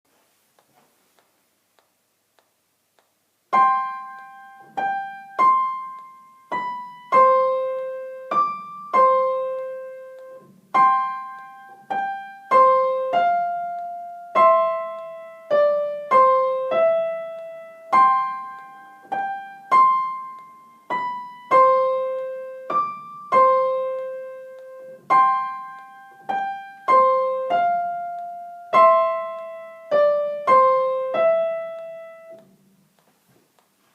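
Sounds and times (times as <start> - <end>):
slow piano melody: 3.5 - 33.0.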